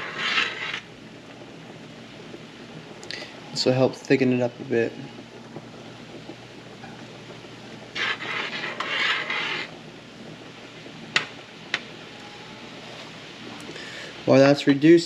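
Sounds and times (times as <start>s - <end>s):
utensil scraping cookware: 0.0s - 0.9s, 7.8s - 9.8s.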